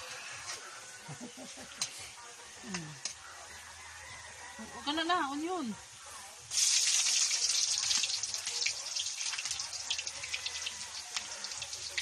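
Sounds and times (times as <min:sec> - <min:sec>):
onion and garlic sizzling in oil: 0:05.9 - 0:12.0.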